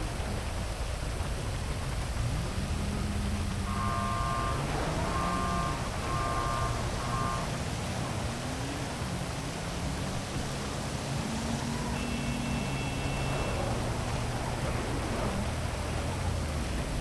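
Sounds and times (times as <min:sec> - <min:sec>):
heavy rain falling: 0:00.0 - 0:17.0
low hum of traffic: 0:00.0 - 0:17.0
thin steady high tone: 0:11.2 - 0:15.4
short beeps: 0:11.8 - 0:13.9.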